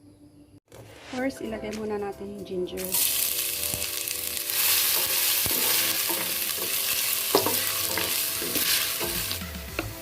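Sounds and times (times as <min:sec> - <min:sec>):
ginger sizzling in hot oil: 0:02.8 - 0:09.8.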